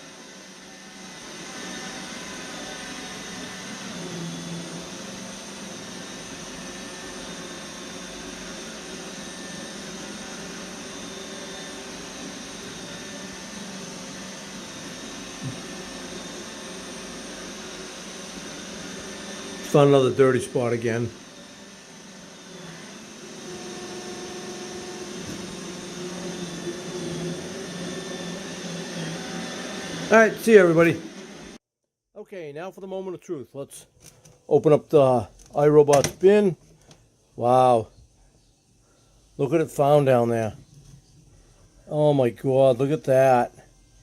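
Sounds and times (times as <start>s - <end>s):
robot vacuum whirring: 0.0s - 31.6s.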